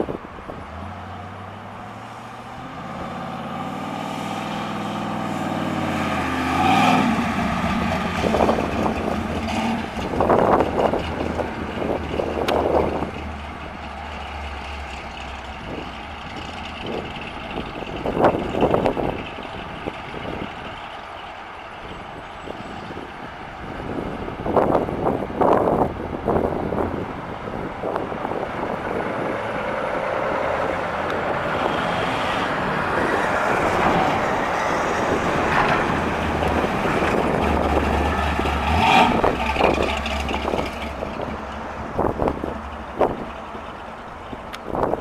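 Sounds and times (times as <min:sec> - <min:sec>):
car engine accelerating: 0:00.0 - 0:45.0
wind noise on microphone: 0:00.0 - 0:45.0.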